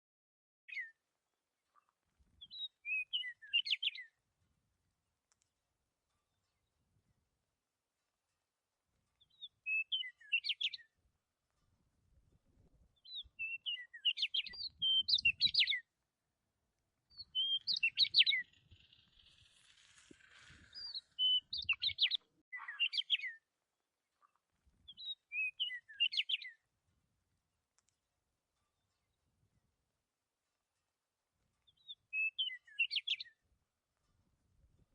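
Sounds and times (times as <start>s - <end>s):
songbird chirping and trilling: 0.7s - 1.0s, 1.8s - 4.2s, 9.0s - 11.0s, 12.9s - 16.0s, 17.0s - 26.7s, 31.6s - 33.5s.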